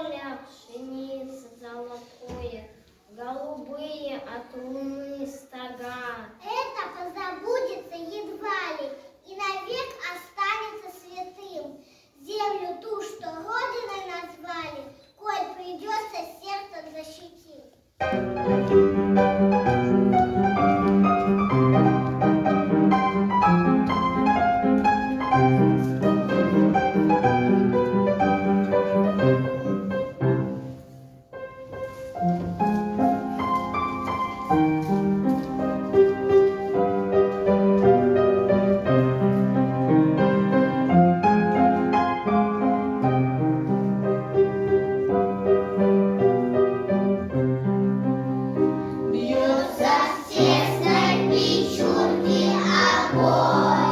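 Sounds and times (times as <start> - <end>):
slow piano piece in chords: 18.0 - 53.9.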